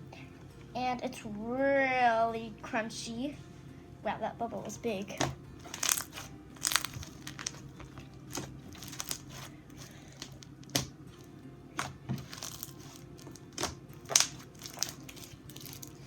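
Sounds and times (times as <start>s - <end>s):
slime crunchy crackles: 5.6s - 11.2s, 11.8s - 16.0s.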